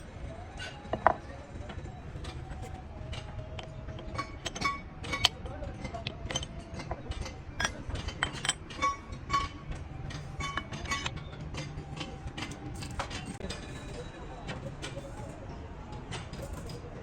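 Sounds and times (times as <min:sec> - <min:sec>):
low workshop rumble: 0:00.0 - 0:17.0
metal tools clinking: 0:00.6 - 0:15.4.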